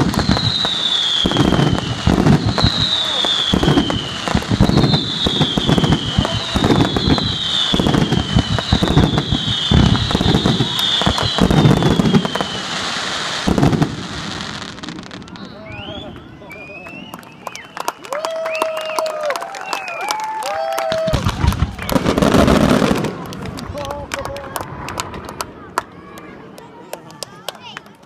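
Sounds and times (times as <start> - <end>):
falling firework whistles: 0.0 - 20.3
firework bangs and crackling: 0.0 - 26.6.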